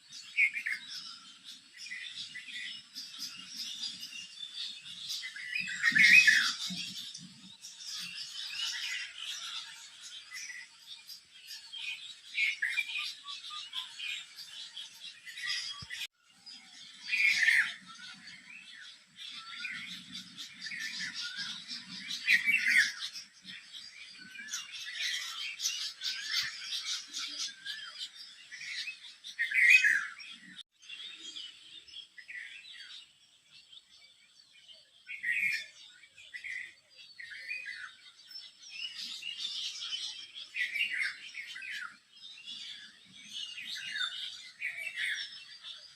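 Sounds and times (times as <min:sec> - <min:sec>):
chorus of small birds chirping: 0:00.0 - 0:45.9
louder bird calls: 0:01.9 - 0:07.1.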